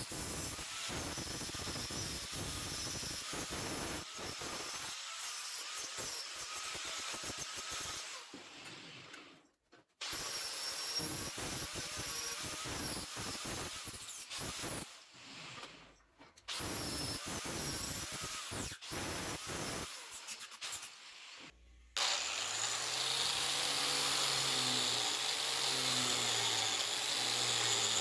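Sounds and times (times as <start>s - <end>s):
workshop power tool running: 22.0s - 28.0s.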